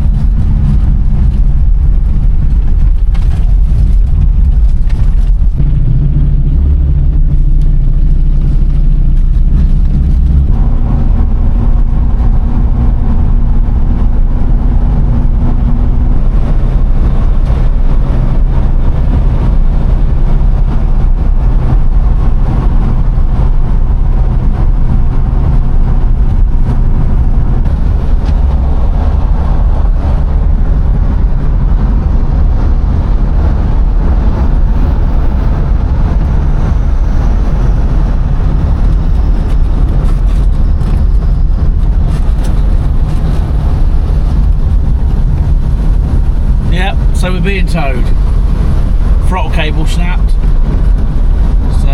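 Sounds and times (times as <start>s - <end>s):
car engine and road noise: 0.0s - 51.9s.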